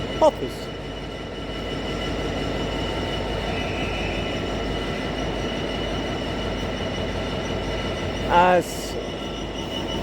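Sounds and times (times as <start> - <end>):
freight train wheels rumbling: 0.0 - 10.0
thin high tone: 3.2 - 5.8.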